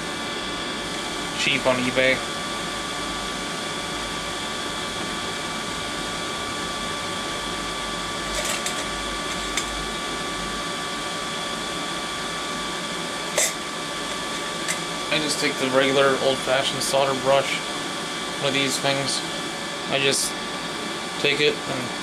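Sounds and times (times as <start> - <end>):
faint high hum: 0.0 - 5.0, 12.5 - 22.0
machine whir: 8.1 - 10.0, 13.2 - 17.6.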